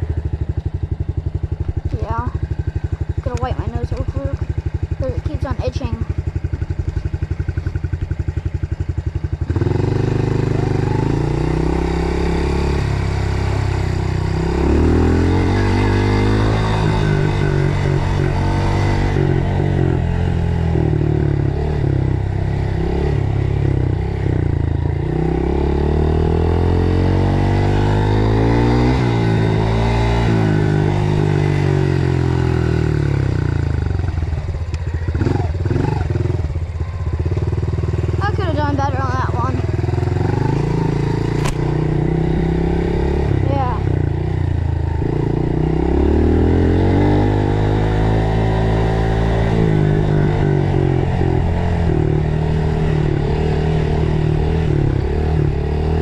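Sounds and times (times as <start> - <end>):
dirt bike engine revving: 1.0 - 56.0.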